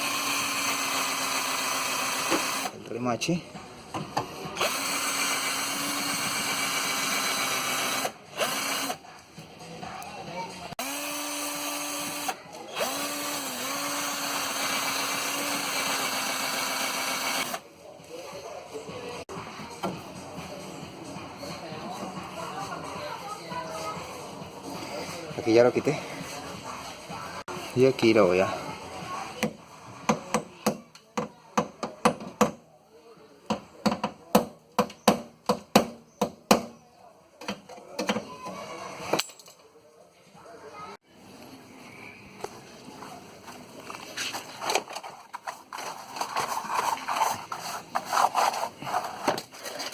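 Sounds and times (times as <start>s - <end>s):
electric drill drilling rivet: 0.0s - 2.7s, 4.6s - 9.0s, 10.8s - 17.6s.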